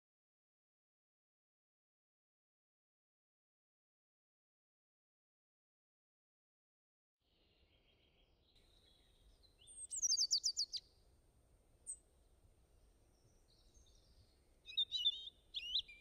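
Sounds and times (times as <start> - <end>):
birds chirping: 7.4 - 10.9, 13.1 - 16.0.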